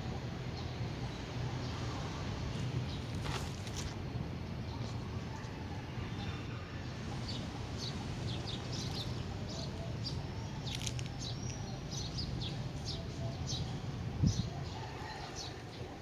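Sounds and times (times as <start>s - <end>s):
small birds chirping: 6.2s - 16.0s.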